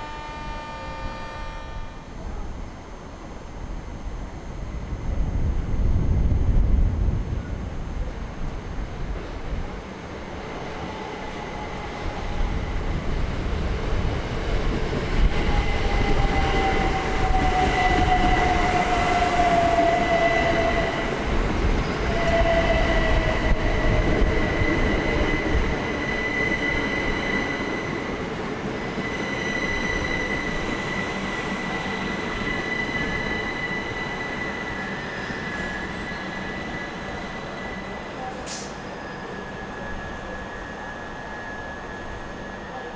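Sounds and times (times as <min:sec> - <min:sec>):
high steady squeal: 0:00.0 - 0:05.8, 0:14.5 - 0:42.9
electric train whine slowing: 0:00.0 - 0:42.9.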